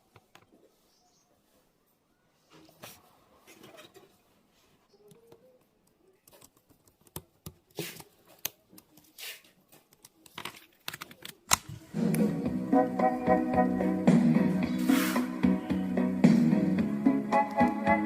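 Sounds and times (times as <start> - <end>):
rustling or scraping strokes: 14.7 - 15.4.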